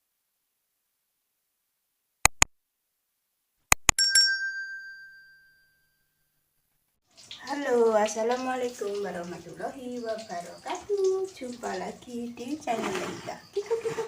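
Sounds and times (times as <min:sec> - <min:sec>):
sharp clicks: 0:02.3 - 0:02.5, 0:03.7 - 0:04.0
bell-like clinks: 0:04.0 - 0:05.8.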